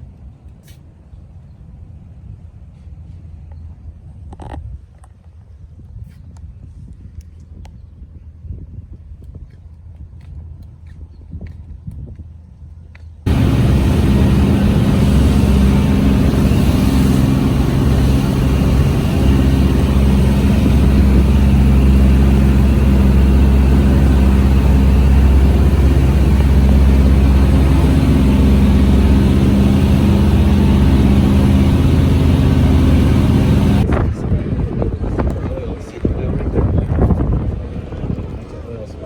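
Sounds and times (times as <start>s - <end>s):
tractor engine running: 13.3s - 33.9s.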